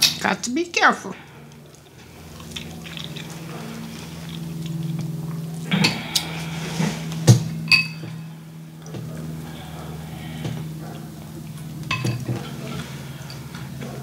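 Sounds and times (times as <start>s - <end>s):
steady low hum: 0.0s - 14.0s
person chewing: 1.2s - 8.1s.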